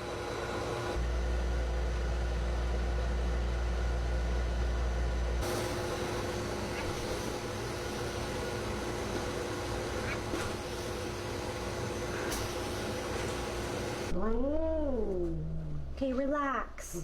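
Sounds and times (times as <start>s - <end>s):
blow dryer humming and hissing: 0.0s - 1.2s, 5.4s - 14.1s
deep rumble: 14.1s - 16.2s.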